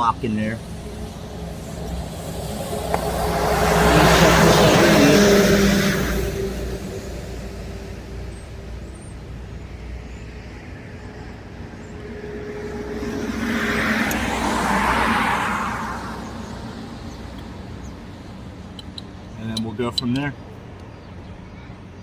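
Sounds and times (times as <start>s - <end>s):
steady low hum: 0.0s - 14.7s
car passing by: 0.0s - 18.6s.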